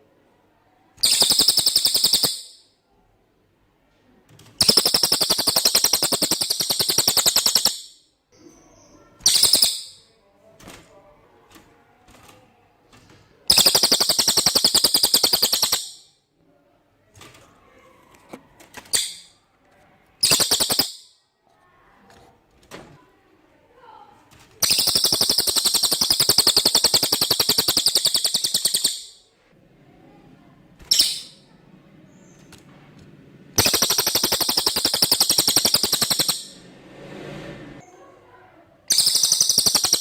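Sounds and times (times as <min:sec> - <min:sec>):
songbird rapid high trills: 0:04.7 - 0:07.9, 0:13.5 - 0:16.0, 0:20.2 - 0:21.1, 0:24.6 - 0:29.2, 0:33.6 - 0:36.6, 0:38.9 - 0:40.0.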